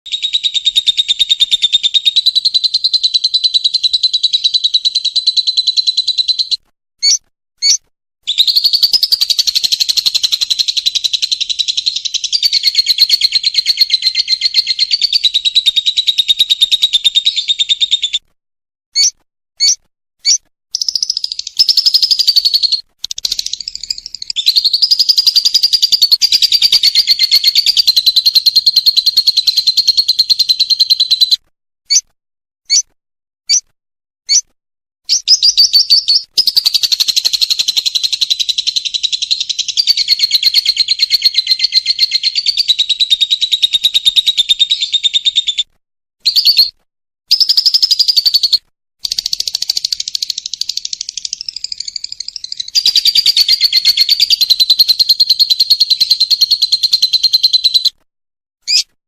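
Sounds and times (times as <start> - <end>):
lovebird shrill chattering: 0.1 - 18.0, 19.0 - 32.0, 35.1 - 45.0, 58.7 - 58.9
bird single chirps: 0.1 - 18.3, 19.0 - 32.1, 32.7 - 33.7, 34.3 - 58.0, 58.6 - 59.0.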